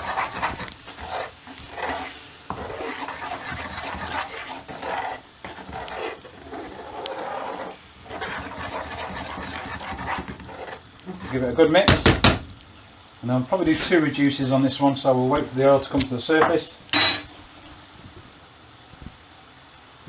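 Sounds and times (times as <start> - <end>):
spoon scraping pan: 0.0 - 12.0
spoon knocking pan: 11.8 - 12.5.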